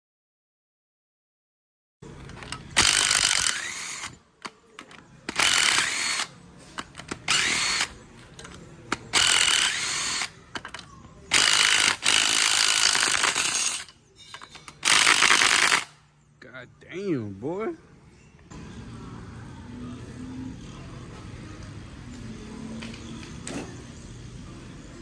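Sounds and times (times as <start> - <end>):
power drill spinning: 2.1 - 16.0, 19.6 - 25.0.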